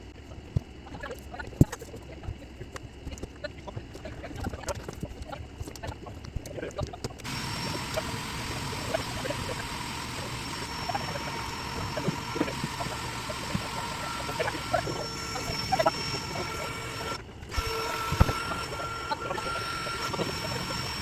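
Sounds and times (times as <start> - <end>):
honey bees buzzing: 7.2 - 21.0.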